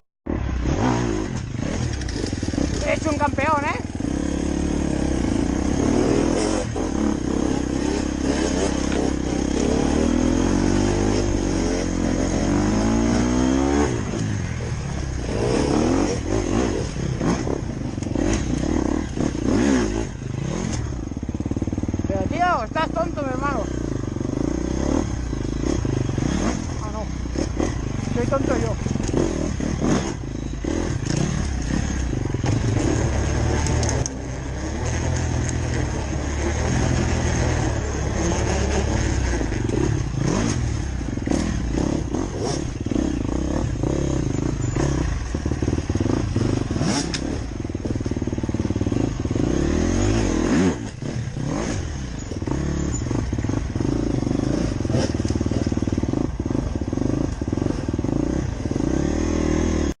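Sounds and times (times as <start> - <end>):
motorcycle engine revving: 0.3 - 60.0.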